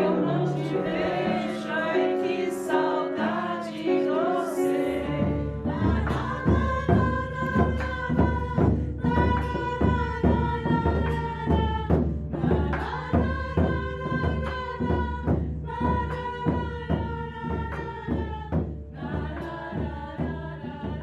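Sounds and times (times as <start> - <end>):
voices singing held notes: 0.0 - 21.0
steady drumbeat: 5.0 - 21.0.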